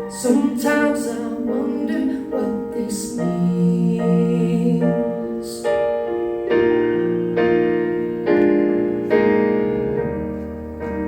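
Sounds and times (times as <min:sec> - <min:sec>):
person singing: 0:00.0 - 0:08.0
piano playing slow chords: 0:00.0 - 0:11.0.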